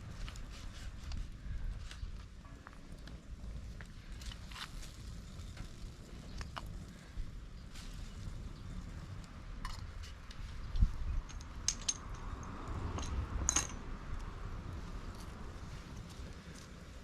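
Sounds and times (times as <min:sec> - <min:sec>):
light metallic clinks and knocks: 0:10.8 - 0:13.9.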